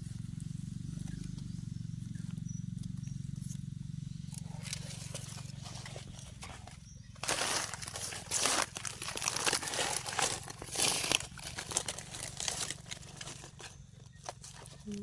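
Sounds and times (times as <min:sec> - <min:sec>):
dry leaves rustling and crunching: 0:03.2 - 0:15.0.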